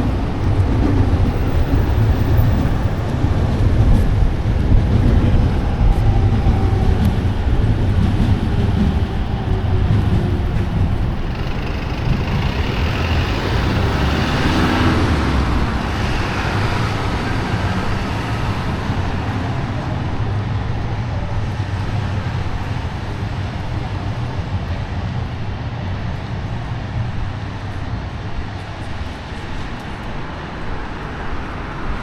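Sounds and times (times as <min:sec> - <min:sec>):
traffic rumble: 0:00.0 - 0:32.0
vehicle passing with tyre hiss: 0:11.2 - 0:18.6.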